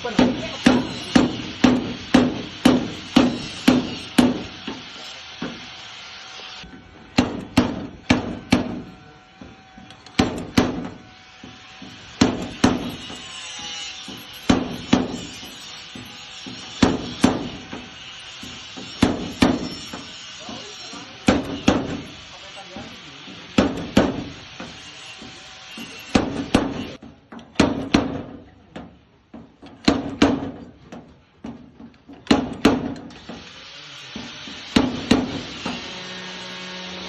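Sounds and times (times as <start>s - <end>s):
hammer blows on sheet metal: 0.0s - 5.7s, 10.2s - 28.4s, 34.1s - 36.1s.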